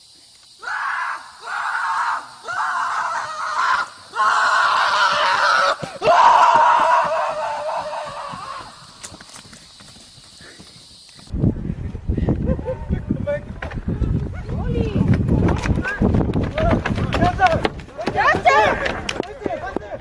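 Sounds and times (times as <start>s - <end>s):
person screaming: 0.6s - 8.8s.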